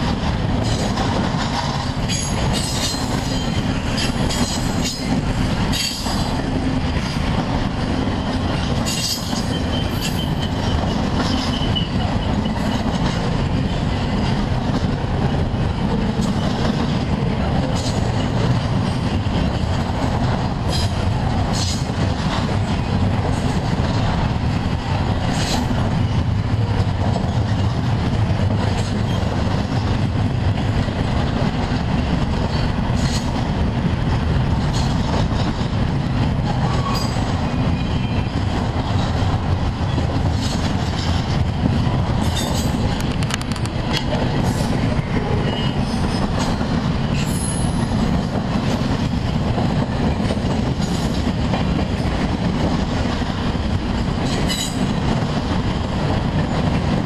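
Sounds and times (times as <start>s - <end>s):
train wheels rumbling on rail: 0.0s - 57.0s
wheels clicking over rails: 0.0s - 57.0s
high wheel squeal: 8.9s - 12.8s.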